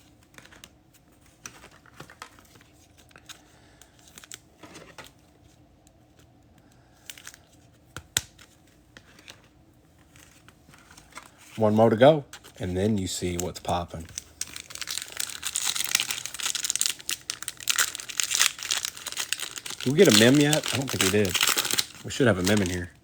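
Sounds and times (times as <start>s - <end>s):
foil wrapper crinkling: 12.5s - 23.0s.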